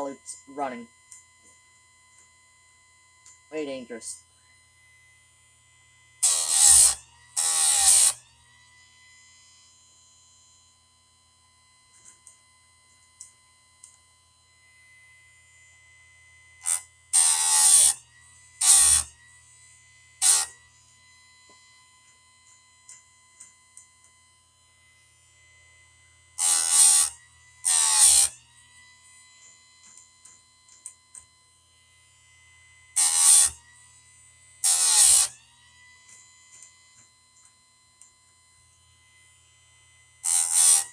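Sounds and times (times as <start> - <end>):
grinder motor whine: 0.0 - 40.9
wheel rasping chain teeth: 6.2 - 8.2, 16.6 - 18.0, 18.6 - 19.1, 20.2 - 20.5, 26.4 - 27.1, 27.7 - 28.3, 33.0 - 33.6, 34.6 - 35.3, 40.2 - 40.9.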